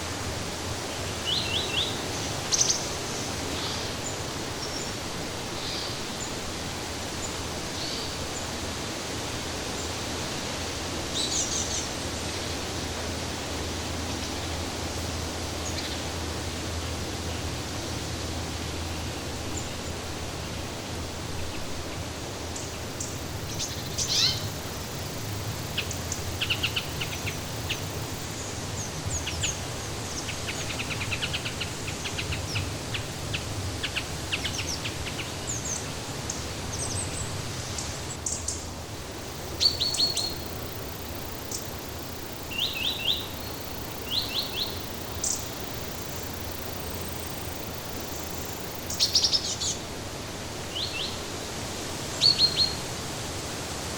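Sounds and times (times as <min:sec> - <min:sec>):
steady background hiss: 0:00.0 - 0:53.9
songbirds chirping and trilling: 0:21.4 - 0:50.0.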